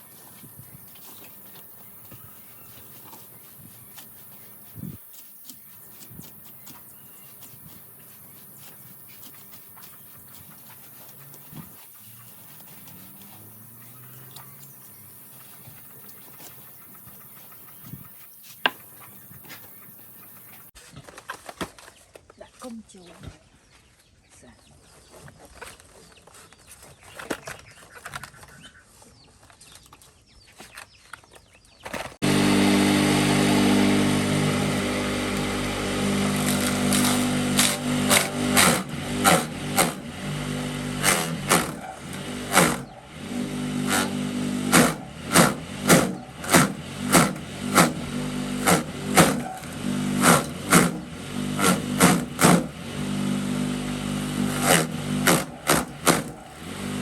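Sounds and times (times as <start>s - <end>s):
engine running: 0.0s - 20.7s, 32.2s - 57.0s.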